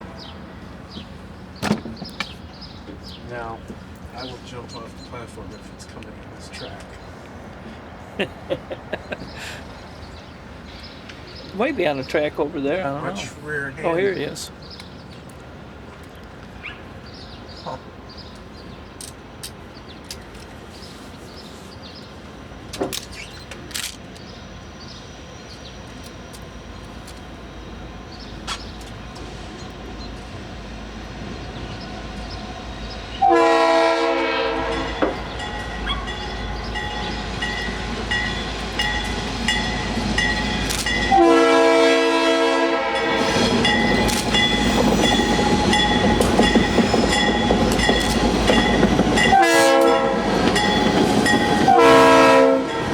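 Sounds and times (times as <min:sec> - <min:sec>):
train wheels on rails: 0:00.0 - 0:13.4, 0:14.2 - 0:42.2, 0:42.8 - 0:52.9
freight train rumbling: 0:00.0 - 0:52.9
locomotive air horn blasts: 0:33.2 - 0:35.0, 0:41.0 - 0:43.4, 0:49.3 - 0:50.9, 0:51.5 - 0:52.9.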